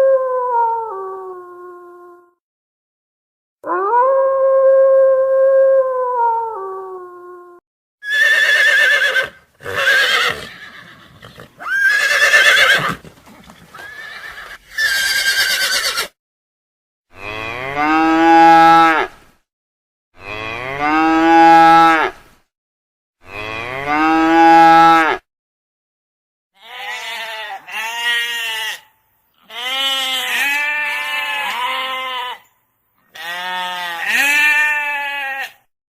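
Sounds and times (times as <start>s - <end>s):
farm animals calling: 8.0s - 16.1s, 26.6s - 32.5s, 33.1s - 35.6s.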